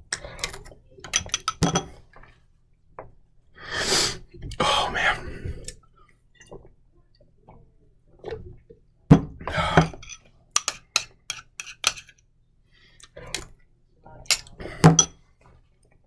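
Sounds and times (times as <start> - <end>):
spoon clinking against jar: 0.1 - 1.9, 9.8 - 12.1, 14.3 - 15.1.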